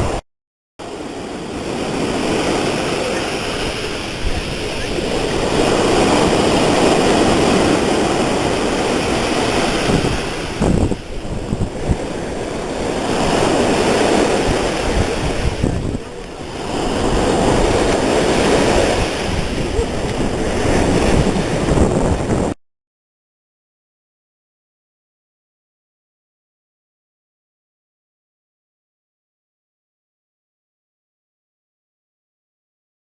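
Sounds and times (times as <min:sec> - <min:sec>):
sea waves washing onto shore: 0:00.8 - 0:22.6.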